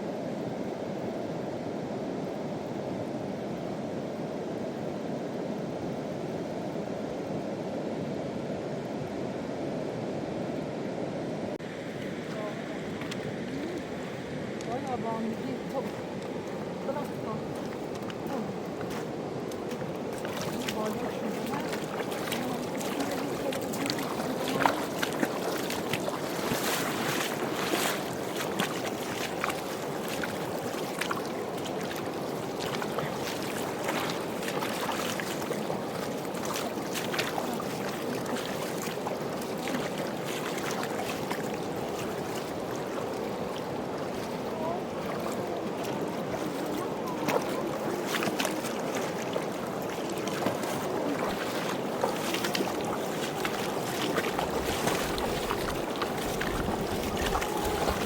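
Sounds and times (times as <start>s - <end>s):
fast-flowing river rushing: 11.6s - 58.0s
wind rumble on microphone: 50.6s - 58.0s.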